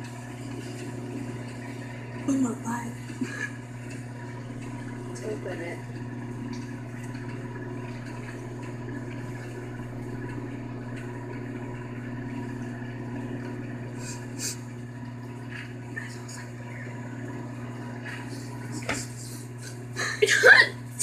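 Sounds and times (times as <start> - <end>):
microwave oven humming: 0.0 - 21.0.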